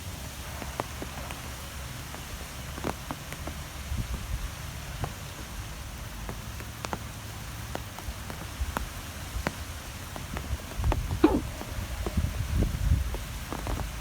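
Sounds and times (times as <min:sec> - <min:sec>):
light ticks: 0:05.0 - 0:11.0.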